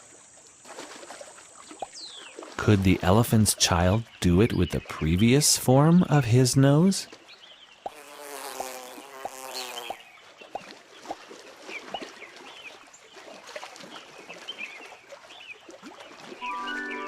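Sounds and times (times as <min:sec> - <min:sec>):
insect buzz: 0:07.8 - 0:10.1
music: 0:16.4 - 0:17.0.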